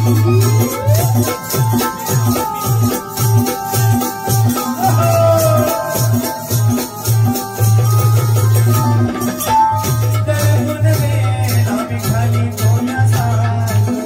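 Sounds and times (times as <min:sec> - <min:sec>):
held melody notes: 0:00.0 - 0:13.4
jingling hand percussion: 0:00.0 - 0:14.0
rhythmic low drum beat: 0:00.0 - 0:14.0.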